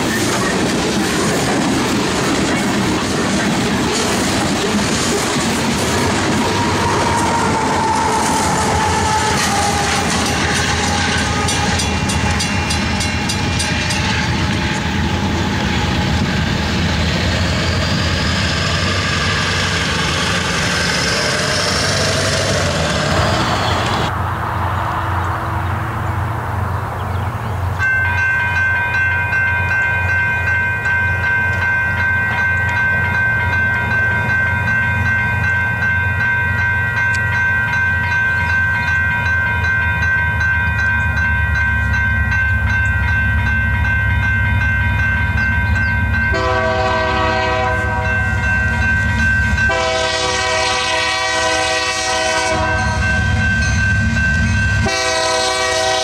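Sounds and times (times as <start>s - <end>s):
freight train clattering over rails: 0.0s - 24.2s
distant train horn chord: 5.9s - 16.3s, 45.6s - 56.0s.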